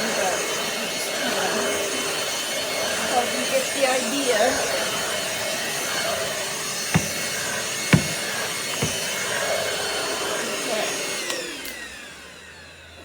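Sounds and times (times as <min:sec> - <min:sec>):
vacuum cleaner whining: 0:00.0 - 0:13.0
sharp knocks: 0:07.0 - 0:09.0
vacuum motor spinning down: 0:10.8 - 0:13.0.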